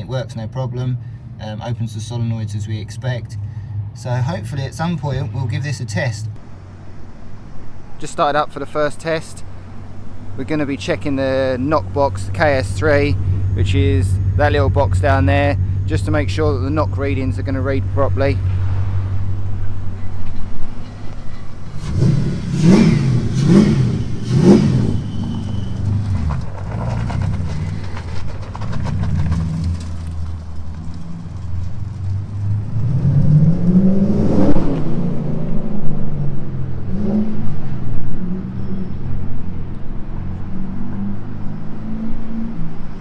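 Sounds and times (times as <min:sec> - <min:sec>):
car engine revving: 0:09.0 - 0:39.0.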